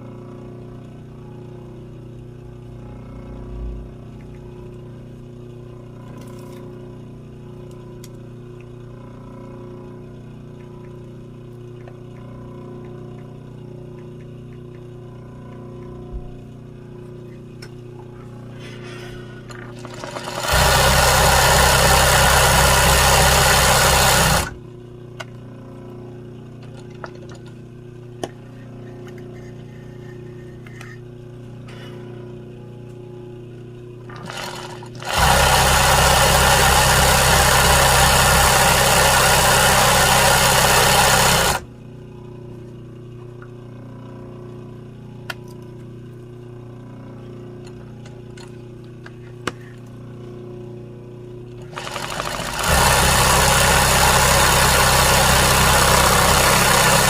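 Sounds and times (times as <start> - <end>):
motor hum: 0.0 - 57.0
sewing machine stitching: 19.7 - 24.6, 34.1 - 41.7, 51.6 - 57.0.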